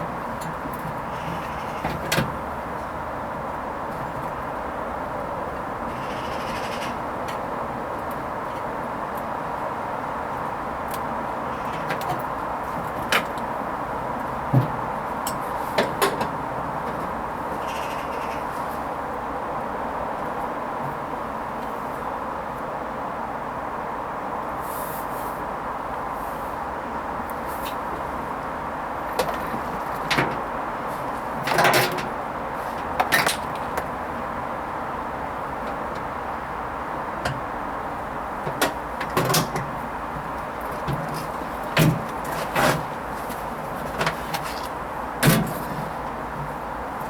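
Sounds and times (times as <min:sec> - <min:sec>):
washing machine hum: 0:26.6 - 0:47.0.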